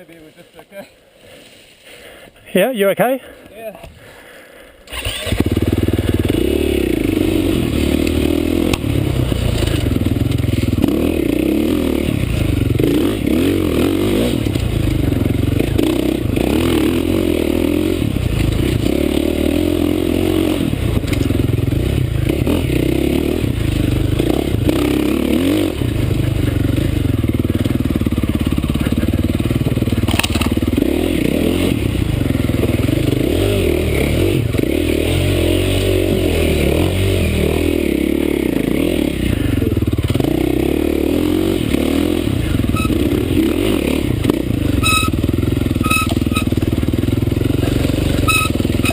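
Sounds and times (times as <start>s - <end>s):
dirt bike engine revving: 4.9s - 48.9s.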